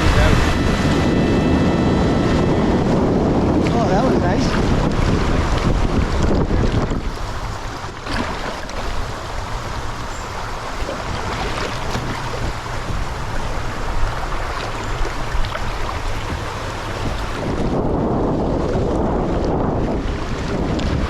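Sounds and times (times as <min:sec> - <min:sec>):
river current rushing: 0:00.0 - 0:17.9
sharp splashes or knocks: 0:04.6 - 0:09.5.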